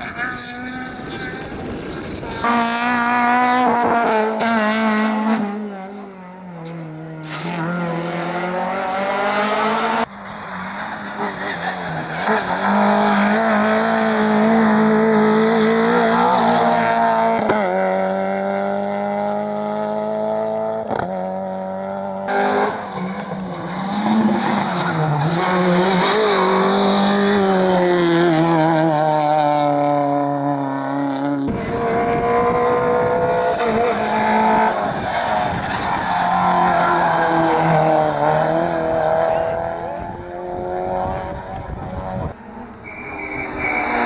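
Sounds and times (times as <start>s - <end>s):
rally car engines revving: 0.0s - 44.0s
tyre squeal: 42.4s - 44.0s.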